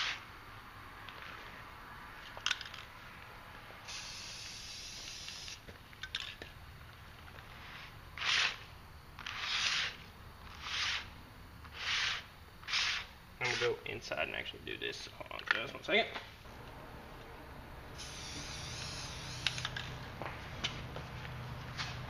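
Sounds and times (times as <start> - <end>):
spray paint can hissing: 3.8 - 5.7, 7.4 - 11.1, 11.7 - 13.8, 17.9 - 20.0.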